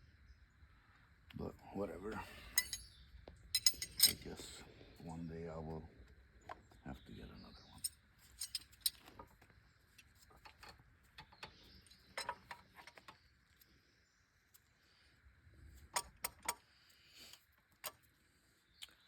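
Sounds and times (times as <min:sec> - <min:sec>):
metallic clinks of hand tools: 0:02.5 - 0:03.0, 0:03.6 - 0:04.6, 0:07.8 - 0:09.0.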